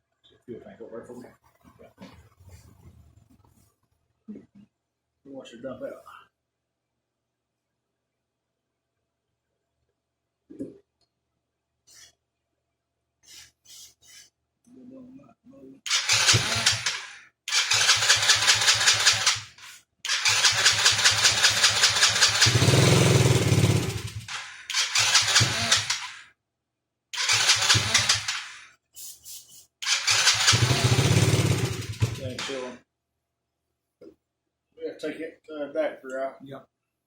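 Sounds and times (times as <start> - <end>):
small engine being cranked: 15.9 - 26.2, 27.2 - 28.6, 29.8 - 32.7.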